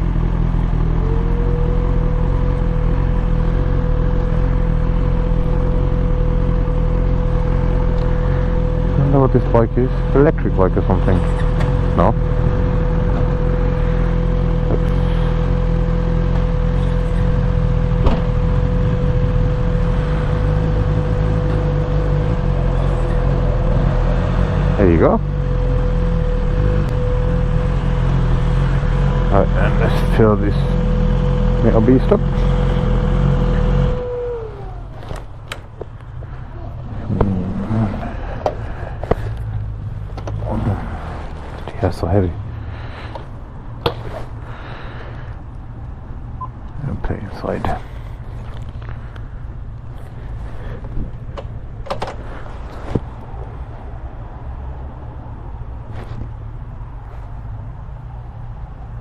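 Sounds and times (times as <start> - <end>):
motorcycle engine running: 0.0 - 45.3
sharp clicks and knocks: 51.4 - 52.2.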